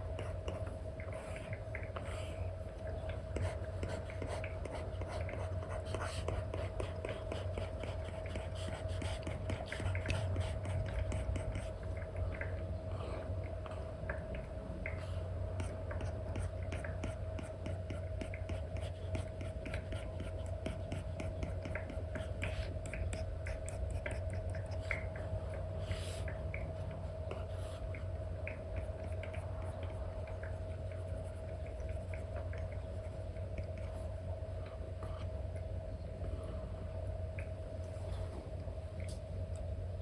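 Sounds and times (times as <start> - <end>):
stylus scratching on tablet screen: 0.0 - 11.8, 15.6 - 26.3
steady low hum: 0.0 - 40.0.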